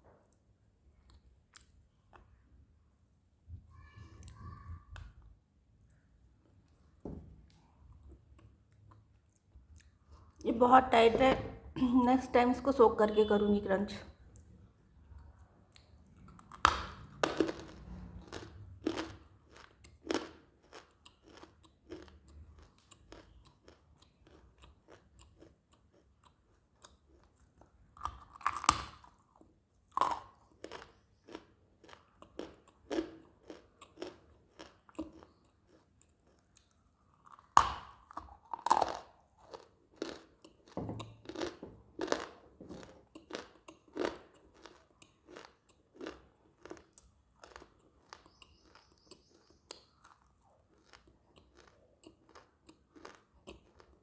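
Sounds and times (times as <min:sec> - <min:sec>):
chewing crunches: 0:15.3 - 0:54.0.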